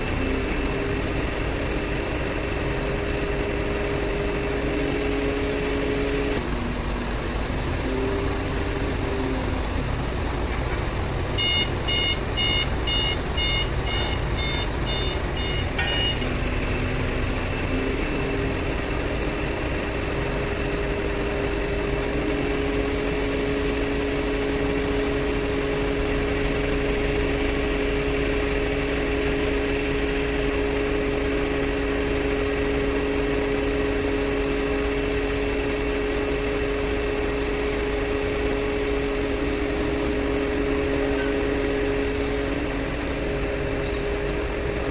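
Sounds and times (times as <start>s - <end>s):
diesel engine running: 0.0s - 44.9s
two-note whine: 2.9s - 10.2s, 22.0s - 44.9s
rapid electronic warning beeps: 11.4s - 16.2s.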